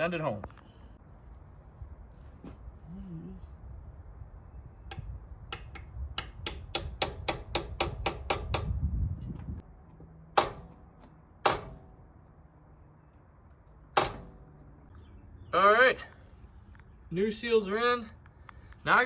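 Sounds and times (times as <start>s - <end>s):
hammer ringing blows on metal: 10.4s - 12.1s, 14.0s - 14.6s.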